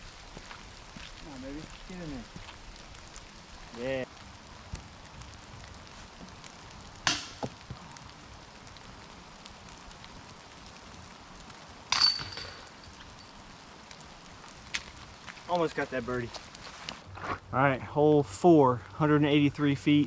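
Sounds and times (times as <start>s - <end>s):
disc striking metal basket: 11.9s - 12.9s.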